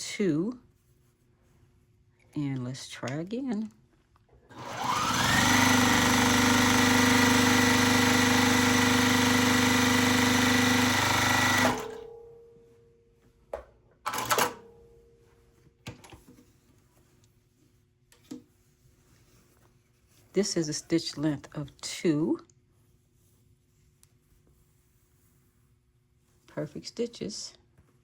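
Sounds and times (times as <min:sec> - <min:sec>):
sewing machine stitching: 0:04.5 - 0:12.1, 0:14.1 - 0:14.6.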